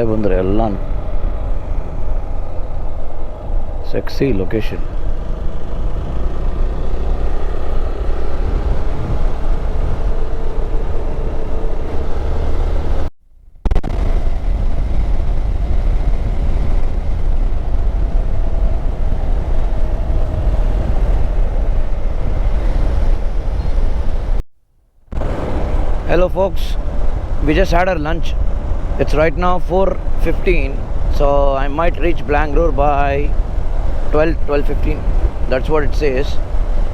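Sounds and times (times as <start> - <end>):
motorcycle engine drone: 0.0 - 24.4, 25.1 - 36.9
wind buffeting microphone: 0.0 - 24.4, 25.1 - 36.9.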